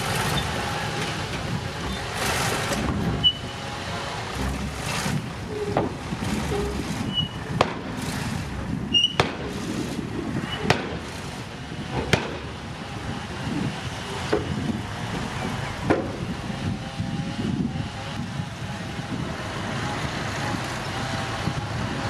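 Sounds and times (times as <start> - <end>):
heavy machinery rumbling: 0.0 - 22.0
sharp metallic knocks: 1.0 - 9.9, 10.5 - 11.4, 12.0 - 12.6
brief high squeaks: 3.2 - 3.6, 6.5 - 7.4.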